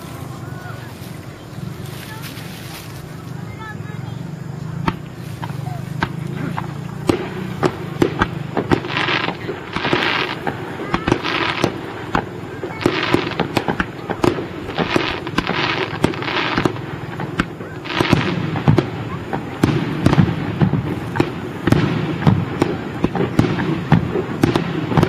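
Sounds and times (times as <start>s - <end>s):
fireworks bangs: 0.0s - 25.0s
fireworks crackling hiss: 0.0s - 25.0s.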